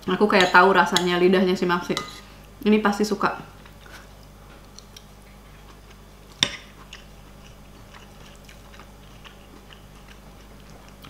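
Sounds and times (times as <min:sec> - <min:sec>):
person chewing food: 0:03.6 - 0:11.0.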